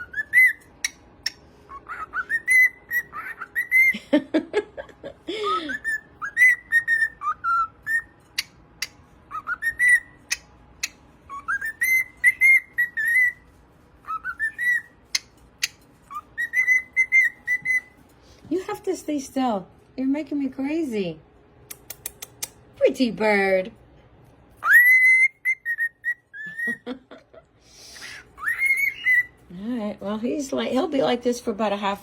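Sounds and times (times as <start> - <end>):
cockatiel whistling: 0.0 - 4.0, 5.4 - 18.0, 24.6 - 26.9, 27.8 - 29.4
sharp clicks: 21.6 - 22.6.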